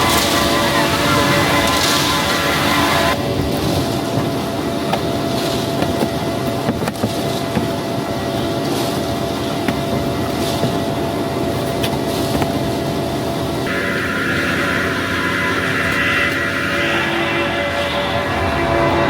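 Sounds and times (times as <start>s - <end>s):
road noise: 0.0s - 3.4s, 13.6s - 19.0s
concrete mixer truck running: 13.7s - 19.0s.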